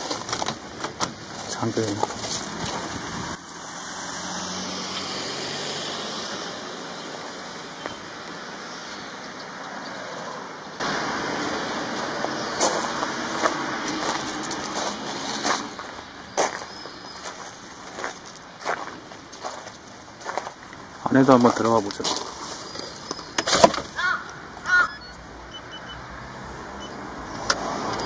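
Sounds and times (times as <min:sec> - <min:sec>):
road traffic noise: 0:00.0 - 0:28.0
vehicle passing: 0:01.4 - 0:23.1, 0:23.9 - 0:28.0.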